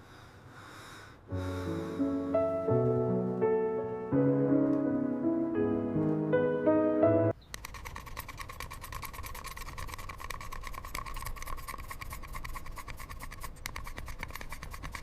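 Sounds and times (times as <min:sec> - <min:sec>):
small scratching clicks: 0:07.5 - 0:15.0.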